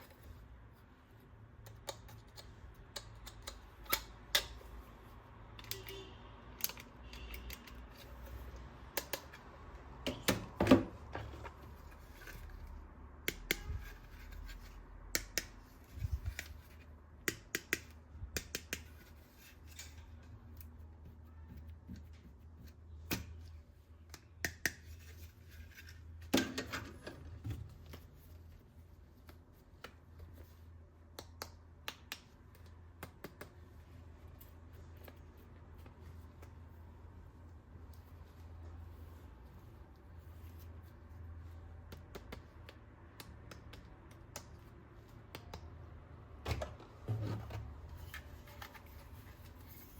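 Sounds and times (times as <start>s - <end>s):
plastic toy parts clicking: 6.6s - 8.1s.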